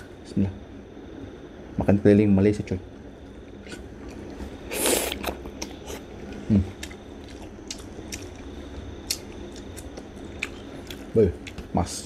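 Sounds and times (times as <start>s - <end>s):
wet chewing and mouth smacks: 3.5s - 11.6s.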